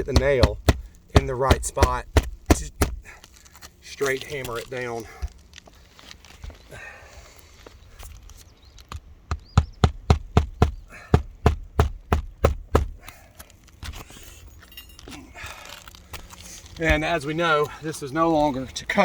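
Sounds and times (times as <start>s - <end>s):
hammer driving nail into roof: 0.0s - 3.1s, 9.3s - 13.1s.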